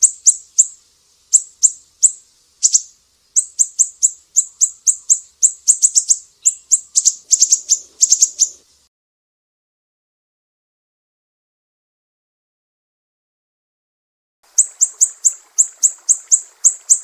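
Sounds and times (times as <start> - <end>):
bird giving sharp high chirps: 0.0 - 8.6, 14.5 - 17.0.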